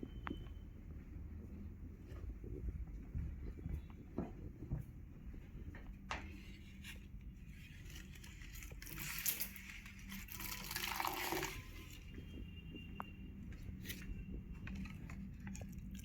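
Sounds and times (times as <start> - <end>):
water pouring: 8.8 - 11.9.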